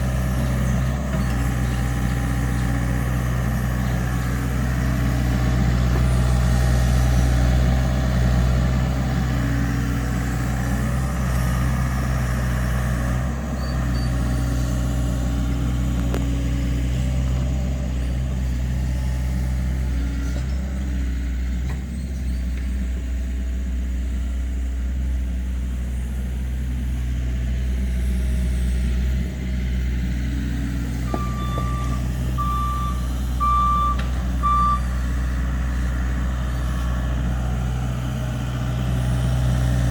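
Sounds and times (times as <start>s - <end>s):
excavator diesel engine running: 0.0s - 39.9s
travel alarm beeping: 31.1s - 34.9s.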